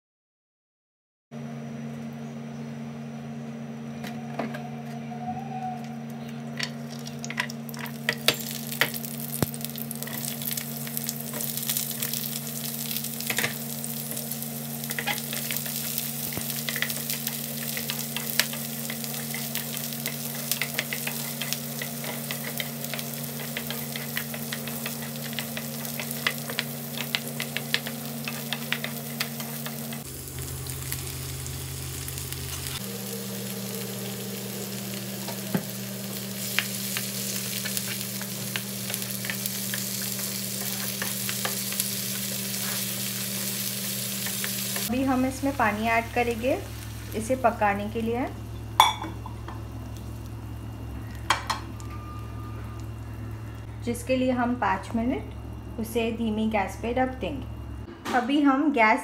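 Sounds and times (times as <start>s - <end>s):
steady low hum: 1.4s - 59.0s
vegetables sizzling in hot oil: 6.6s - 52.0s.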